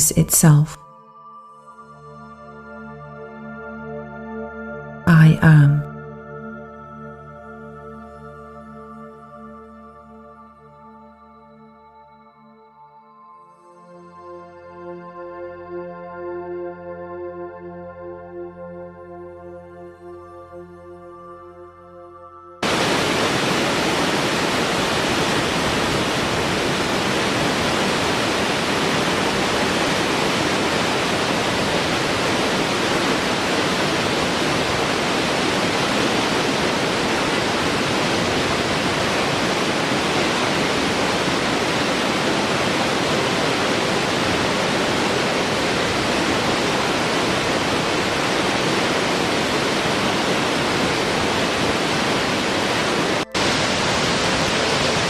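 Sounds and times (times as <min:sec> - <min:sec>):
steady rushing noise: 0:22.6 - 0:55.0.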